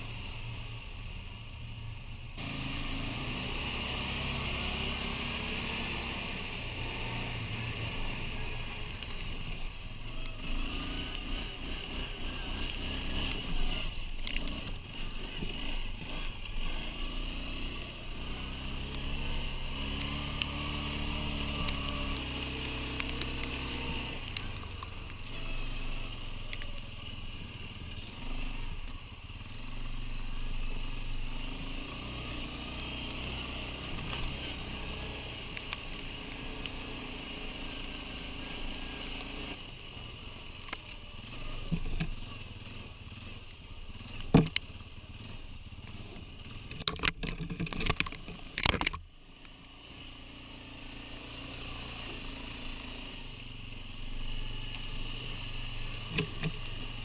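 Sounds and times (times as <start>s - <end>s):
quad bike engine running: 2.4s - 57.0s.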